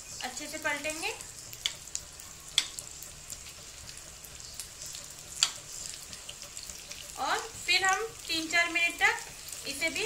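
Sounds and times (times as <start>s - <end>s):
patties sizzling in oil: 0.0s - 10.0s
metal knife clicking on pan: 2.5s - 2.8s, 5.4s - 5.6s.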